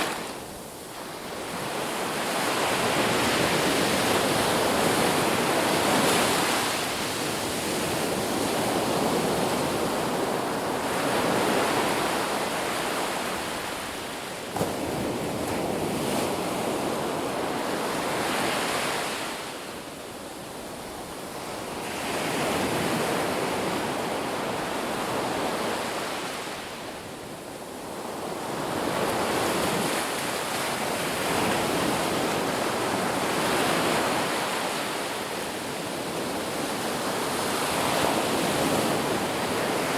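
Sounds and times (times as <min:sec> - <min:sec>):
ocean waves washing onto beach: 0:00.0 - 0:39.9.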